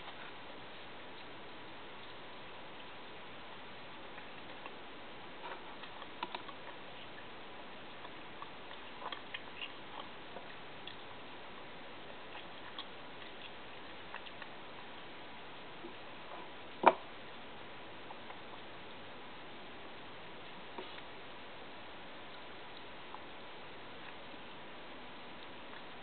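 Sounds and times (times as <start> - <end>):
person chewing food: 7.9 - 11.2, 11.9 - 15.0.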